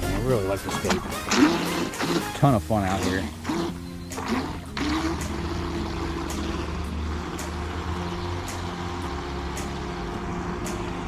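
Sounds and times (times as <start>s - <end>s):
water noise: 0.0s - 11.0s
electric motor whine: 4.4s - 11.0s.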